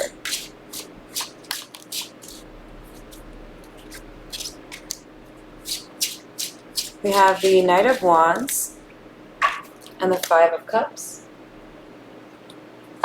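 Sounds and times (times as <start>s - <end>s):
cards being shuffled: 0.0s - 5.0s.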